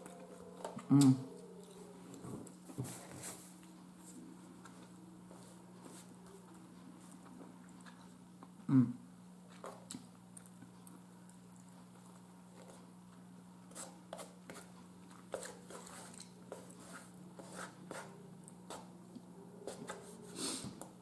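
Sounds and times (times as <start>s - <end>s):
steady low hum: 0.0s - 21.0s
person chewing: 13.8s - 16.8s.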